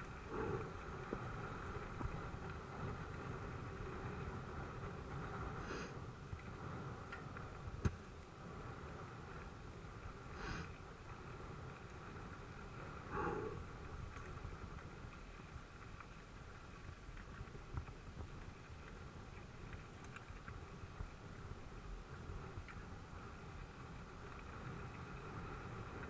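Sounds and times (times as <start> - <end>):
bike tyres rumbling on dirt: 0.0 - 26.0
small clicks: 14.1 - 20.7.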